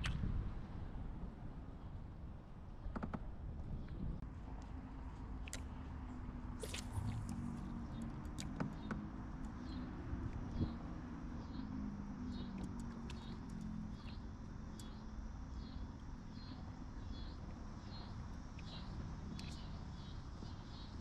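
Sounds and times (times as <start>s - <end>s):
low hum: 0.0s - 21.0s
low rumble: 6.6s - 8.0s.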